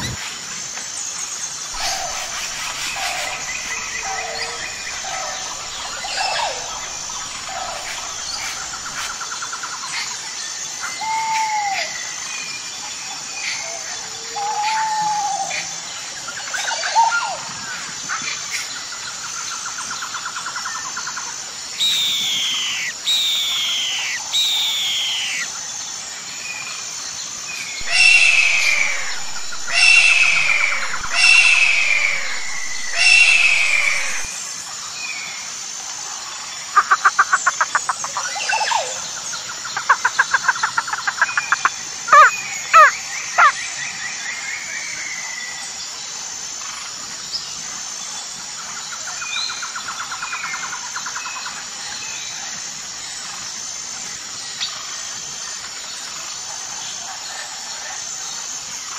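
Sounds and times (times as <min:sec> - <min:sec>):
steady high-pitched hiss: 0:00.0 - 0:58.9
downward-sliding whistled bird calls: 0:01.8 - 0:09.2, 0:21.8 - 0:25.5, 0:27.8 - 0:34.3
rattling bird trills: 0:21.8 - 0:25.4, 0:27.8 - 0:34.3.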